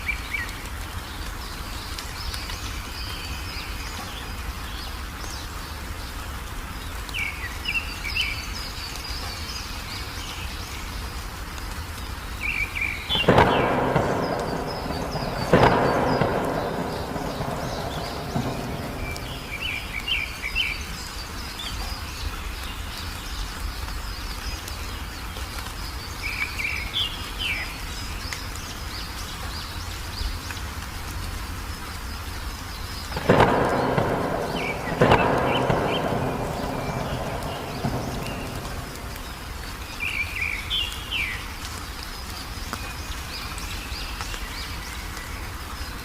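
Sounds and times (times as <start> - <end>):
steady rain hiss: 0.0 - 46.0
songbird chirping: 11.8 - 30.8, 31.9 - 46.0
thunderclaps: 13.1 - 21.1, 33.1 - 40.6.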